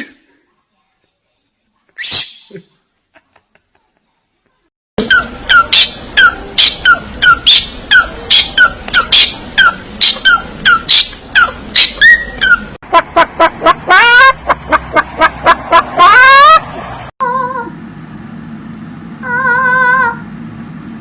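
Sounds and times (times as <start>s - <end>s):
parrot calls: 5.0s - 12.8s, 19.2s - 20.2s.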